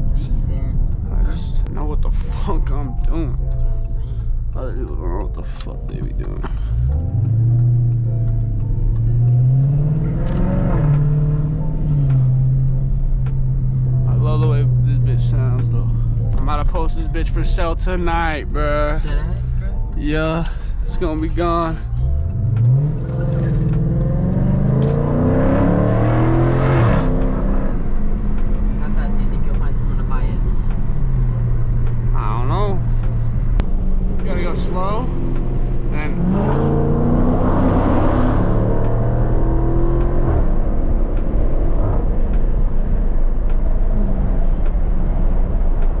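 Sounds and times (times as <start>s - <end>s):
car engine accelerating hard: 0.0s - 46.0s.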